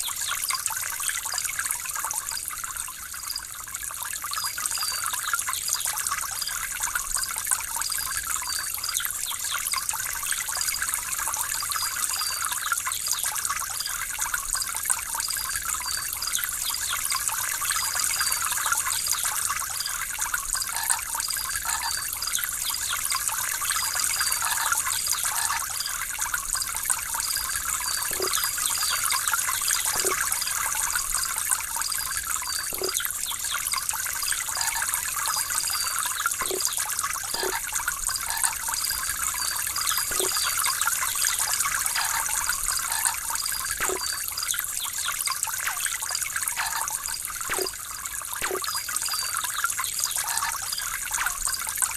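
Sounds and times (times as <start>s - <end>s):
water trickling and splashing: 0.0s - 51.9s
faint high chirps: 31.9s - 33.6s, 42.0s - 45.8s.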